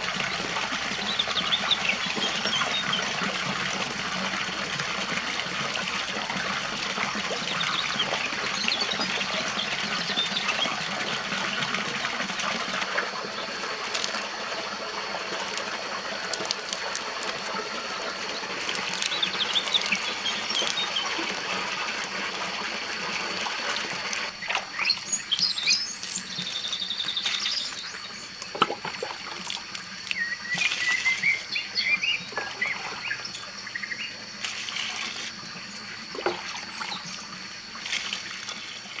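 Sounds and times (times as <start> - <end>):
birds chirping: 0.0 - 3.4, 7.0 - 28.6, 30.0 - 34.3
water running and splashing: 0.0 - 39.0.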